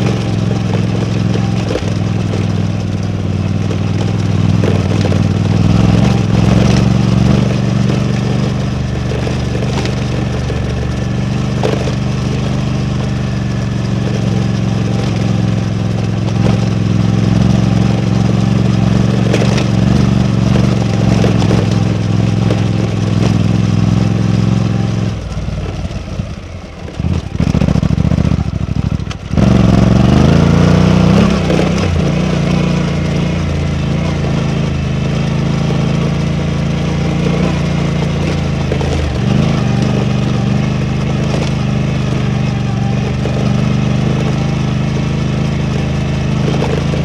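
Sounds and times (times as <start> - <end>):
motorcycle engine: 0.0 - 47.0.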